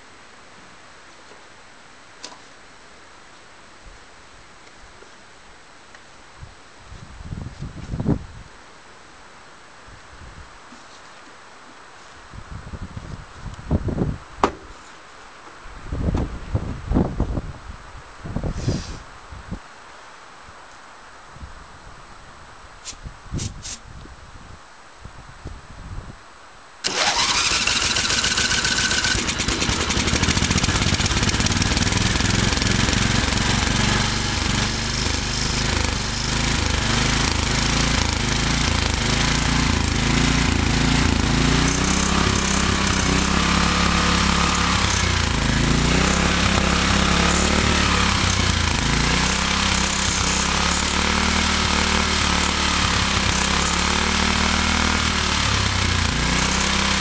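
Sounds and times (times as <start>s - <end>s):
lawn tractor engine running roughly: 26.8s - 57.0s.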